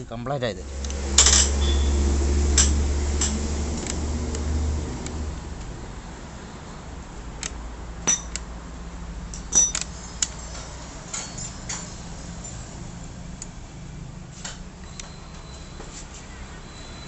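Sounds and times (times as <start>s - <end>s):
metal parts clinking: 1.2s - 1.8s, 8.0s - 8.4s, 9.3s - 12.7s.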